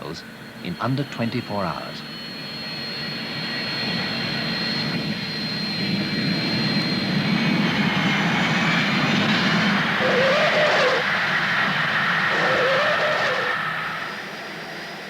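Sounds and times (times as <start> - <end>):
jet engines whining and roaring: 0.0 - 15.0.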